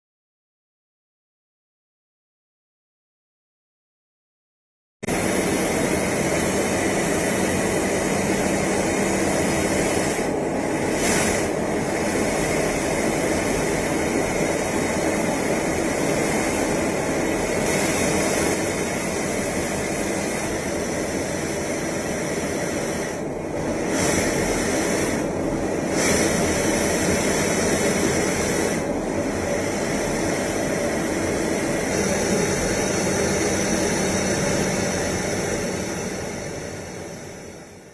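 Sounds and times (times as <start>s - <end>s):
jet aircraft rushing noise: 5.0s - 37.5s.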